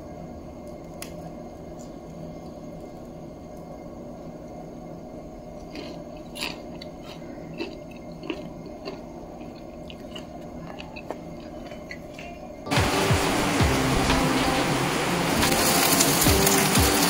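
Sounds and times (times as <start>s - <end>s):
steady low hum: 0.0s - 17.0s
crunchy chewing: 5.5s - 12.7s.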